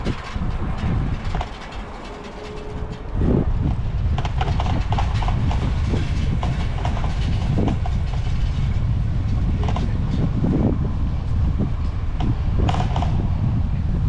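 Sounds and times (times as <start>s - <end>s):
bicycle rattling and clicking: 0.0s - 10.0s
tyre and wind rumble: 0.0s - 14.0s.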